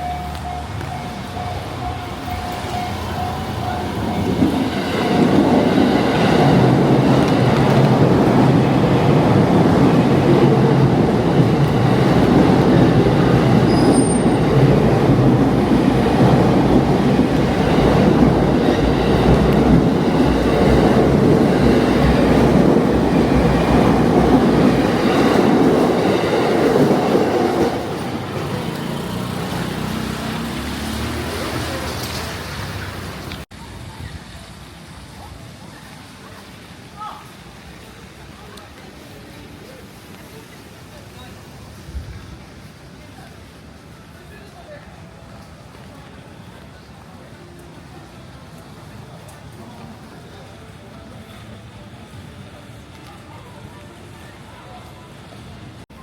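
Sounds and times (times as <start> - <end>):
train passing with loud rumble: 0.0 - 56.0.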